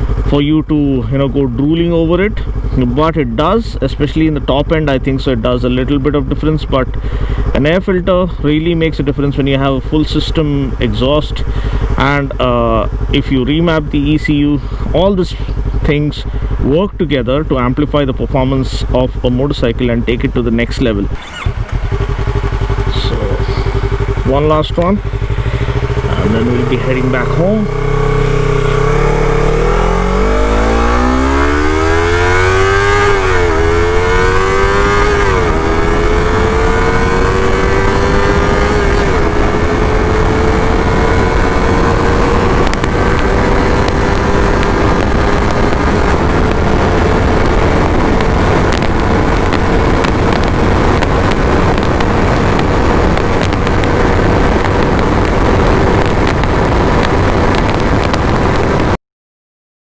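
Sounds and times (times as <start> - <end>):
motorcycle engine accelerating: 0.0 - 59.0
wind noise: 21.1 - 59.0.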